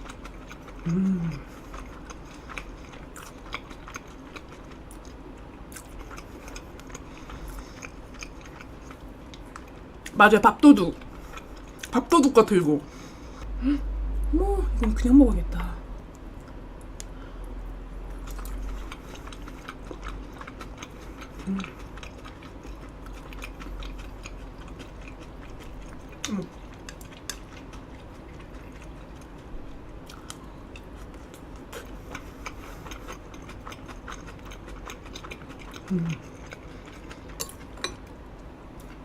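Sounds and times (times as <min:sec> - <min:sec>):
close chewing with wet mouth clicks: 0:00.0 - 0:10.2, 0:18.1 - 0:38.1.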